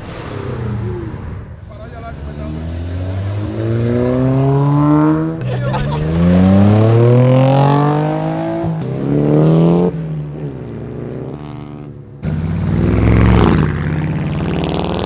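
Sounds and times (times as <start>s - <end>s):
deeper car passing loudly: 0.0s - 10.3s
car accelerating past: 0.0s - 15.0s.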